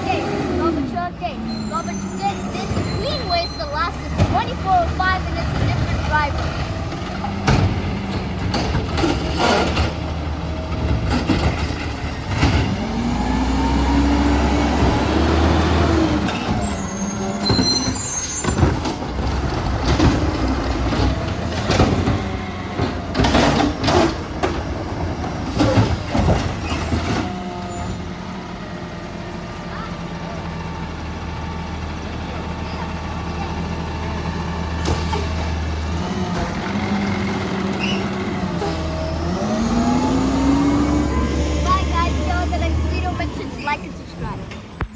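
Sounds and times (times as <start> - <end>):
garbage truck engine running: 0.0 - 44.9
brief high squeal: 1.4 - 3.8, 16.7 - 18.6.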